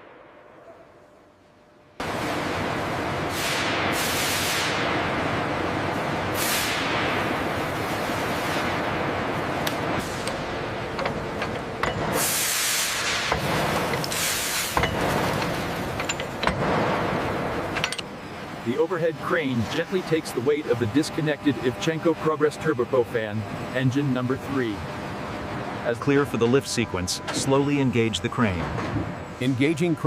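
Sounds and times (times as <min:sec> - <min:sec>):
high air blasts: 0:06.4 - 0:07.2, 0:12.0 - 0:14.8
compressed air blower hissing: 0:12.1 - 0:14.8.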